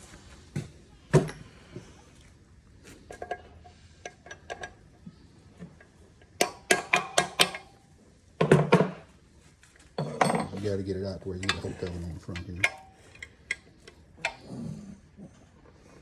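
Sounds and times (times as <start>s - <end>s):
metal tools and parts clinking: 2.9s - 4.8s, 5.6s - 7.8s, 10.0s - 14.8s.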